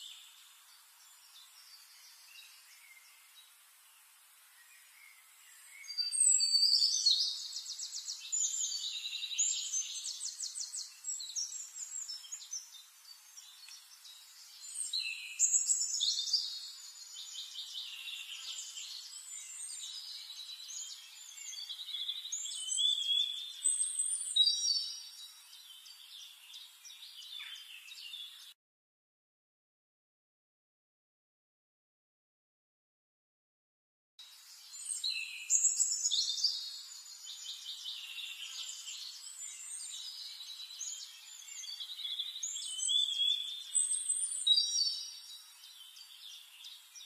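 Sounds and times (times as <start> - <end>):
songbird trilling and warbling: 4.5 - 28.5, 34.4 - 47.0.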